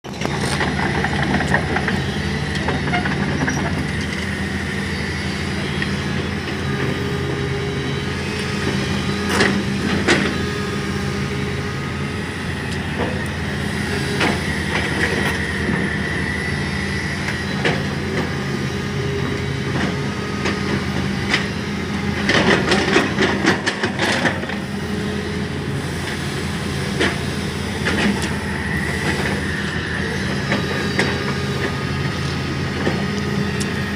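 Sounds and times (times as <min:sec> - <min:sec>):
excavator engine and hydraulic whine: 0:00.0 - 0:33.9.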